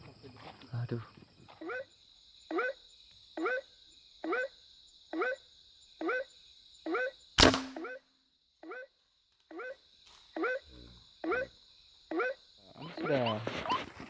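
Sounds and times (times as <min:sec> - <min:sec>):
high insect trill: 0:00.0 - 0:14.0
air rifle shot: 0:07.4 - 0:07.9
waterhen calling kwak: 0:12.1 - 0:14.0.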